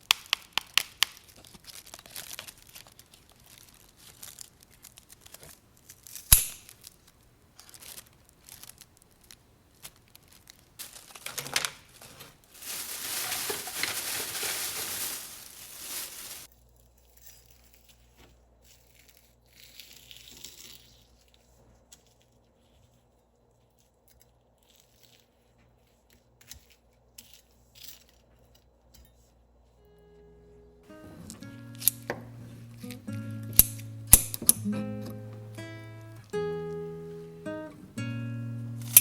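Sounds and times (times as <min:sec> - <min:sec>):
crinkling: 0:00.0 - 0:23.1, 0:30.9 - 0:37.8, 0:38.8 - 0:39.0.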